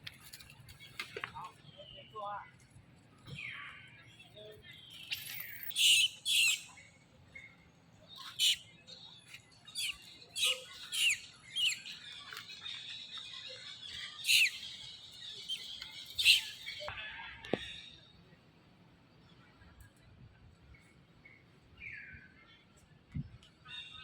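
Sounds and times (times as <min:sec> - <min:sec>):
monkeys squeaking: 0:05.1 - 0:06.6, 0:08.3 - 0:08.6, 0:09.8 - 0:11.9, 0:14.2 - 0:14.7, 0:15.4 - 0:16.8.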